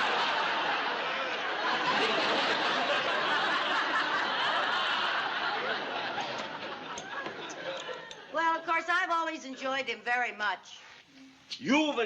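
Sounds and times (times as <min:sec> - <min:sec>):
studio audience laughing: 0:00.0 - 0:08.7.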